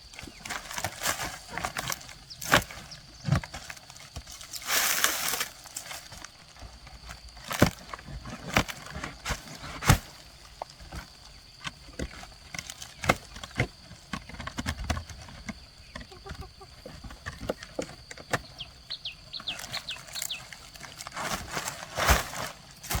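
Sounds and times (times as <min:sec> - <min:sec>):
scraping or rustling noise: 0:19.4 - 0:23.0.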